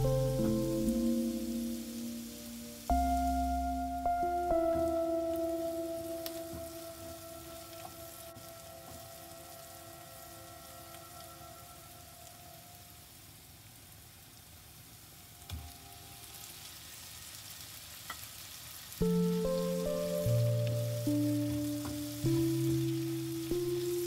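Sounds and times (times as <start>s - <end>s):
louder music notes: 0.0s - 12.4s
soft background music: 0.0s - 13.0s, 19.0s - 24.0s
vegetables sizzling in a frying pan: 0.0s - 24.0s.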